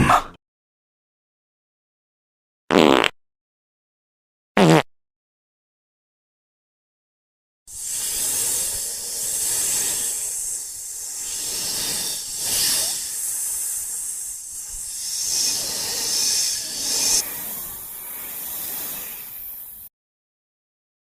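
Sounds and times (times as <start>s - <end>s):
loud hiss: 7.7s - 19.9s.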